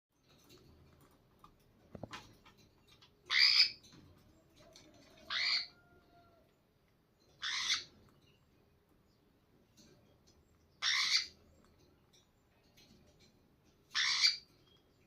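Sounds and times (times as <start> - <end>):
parakeet giving harsh squawks: 3.3 - 3.8, 5.3 - 5.7, 7.4 - 7.9, 10.8 - 11.4, 13.9 - 14.4.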